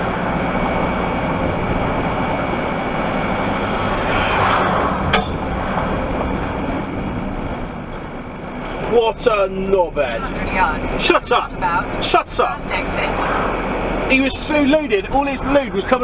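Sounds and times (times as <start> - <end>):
rushing noise: 0.0 - 8.9
road and engine noise in van: 0.0 - 16.0.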